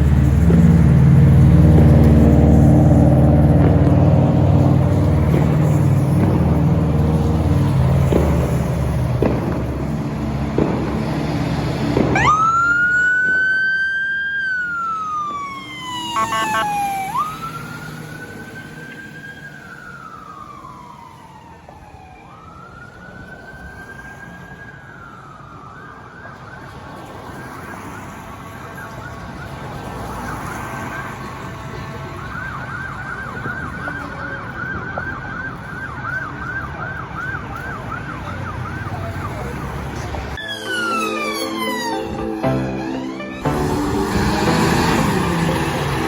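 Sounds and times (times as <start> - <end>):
heavy vehicle engine rumbling: 0.0 - 13.4, 31.2 - 46.0
siren wailing: 12.0 - 31.2, 32.2 - 46.0.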